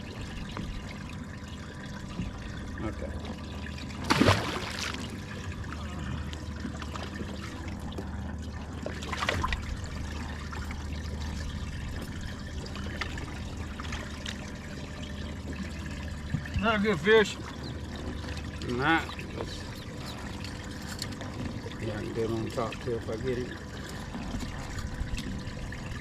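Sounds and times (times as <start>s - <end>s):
water trickling: 0.0s - 26.0s
fish splashing in water: 3.6s - 16.2s.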